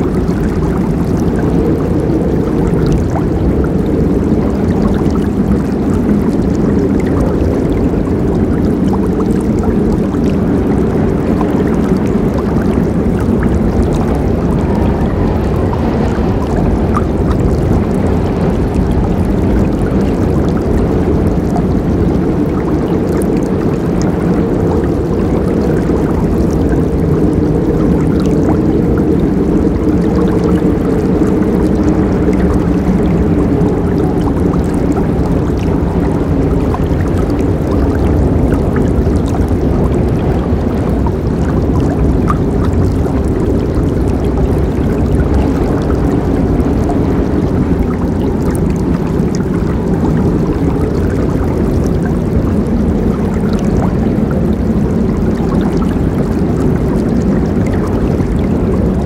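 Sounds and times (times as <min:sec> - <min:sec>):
river water flowing over rocks: 0:00.0 - 0:59.0.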